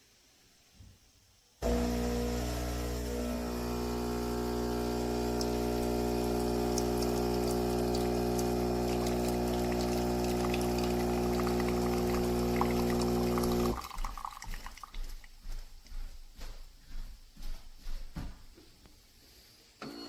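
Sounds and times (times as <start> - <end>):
espresso machine pump humming: 1.6 - 13.9
liquid pouring: 1.6 - 15.4.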